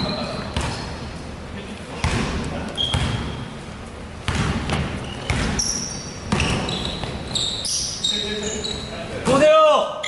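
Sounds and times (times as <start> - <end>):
sneakers squeaking: 0.0 - 1.3, 1.9 - 9.4
basketball bouncing on wooden floor: 2.0 - 3.4, 4.3 - 7.2.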